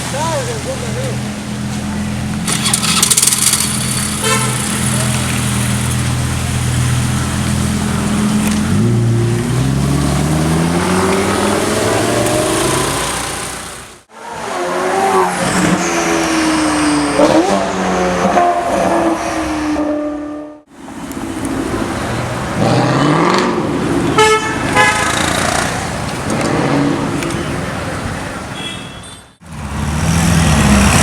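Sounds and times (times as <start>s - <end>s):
running car engines: 0.0s - 31.0s
car horns honking: 2.5s - 5.1s, 18.2s - 20.7s, 24.0s - 25.6s, 28.5s - 29.4s
rapid horn toots: 4.1s - 5.1s, 24.1s - 25.5s.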